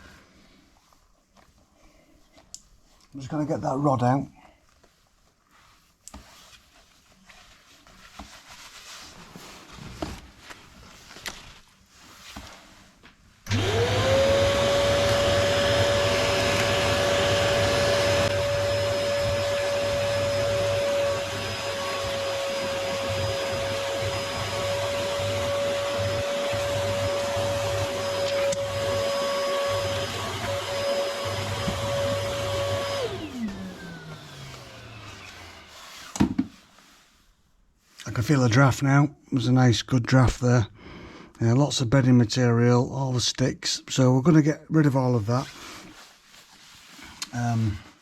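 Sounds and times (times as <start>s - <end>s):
vacuum cleaner motor whining: 13.5s - 36.5s.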